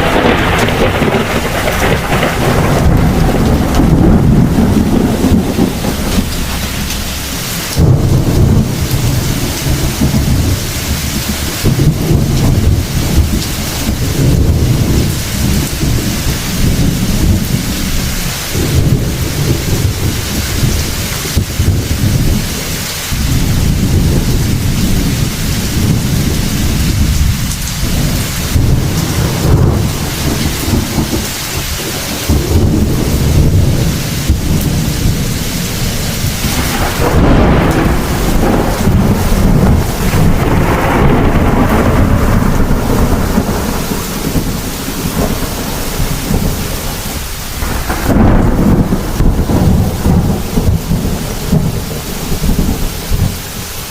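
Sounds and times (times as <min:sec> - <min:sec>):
heavy rain falling: 0:00.0 - 0:53.9
thunder rumbling: 0:00.0 - 0:53.9.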